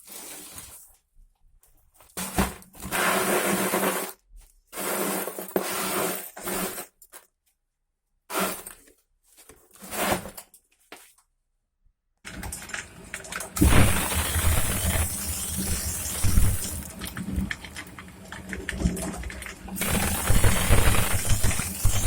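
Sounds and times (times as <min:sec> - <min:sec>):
shredder crushing material: 0:12.3 - 0:17.7, 0:19.8 - 0:22.0.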